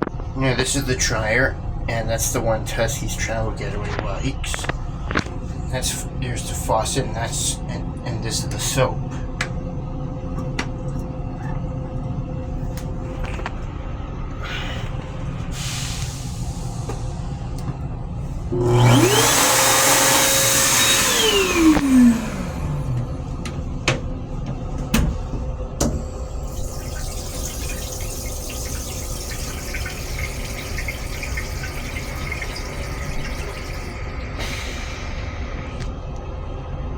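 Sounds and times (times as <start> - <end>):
electric motor spinning up and down: 18.5 - 23.3.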